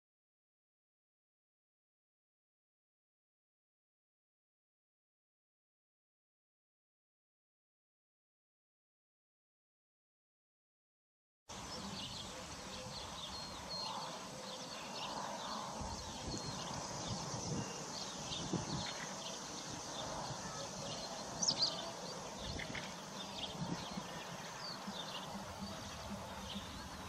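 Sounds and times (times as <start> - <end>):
steady outdoor hiss: 11.5 - 27.0.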